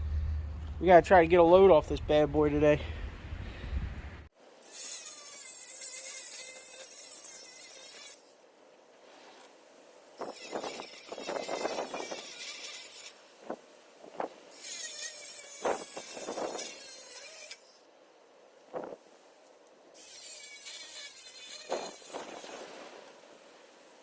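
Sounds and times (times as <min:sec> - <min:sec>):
angle grinder cutting metal: 0:04.6 - 0:08.4, 0:10.2 - 0:13.3, 0:14.5 - 0:17.7, 0:20.0 - 0:22.9.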